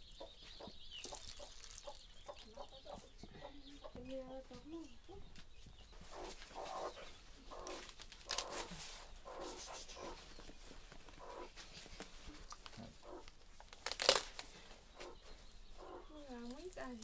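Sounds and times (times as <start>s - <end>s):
leaves rustling and tearing: 7.5s - 15.3s, 16.2s - 17.0s.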